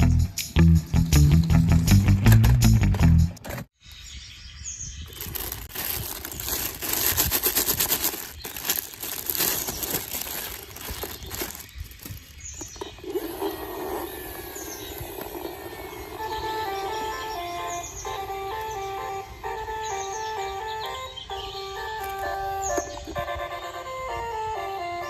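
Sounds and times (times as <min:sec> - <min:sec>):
rustling and crackling: 0:05.1 - 0:16.6.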